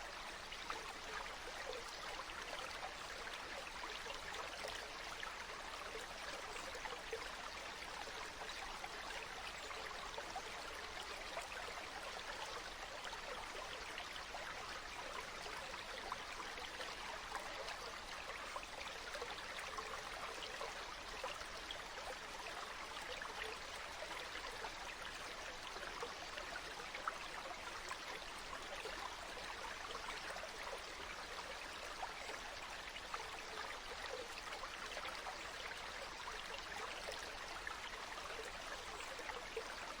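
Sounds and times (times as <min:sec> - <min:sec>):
stream water flowing: 0:00.0 - 0:40.0.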